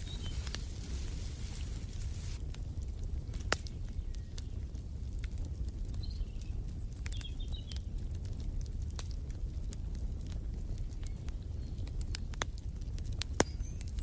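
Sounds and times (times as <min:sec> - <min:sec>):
faint bird chirps: 0:00.0 - 0:00.7
fire popping and snapping: 0:00.0 - 0:14.0
wood fire crackling: 0:00.0 - 0:14.0.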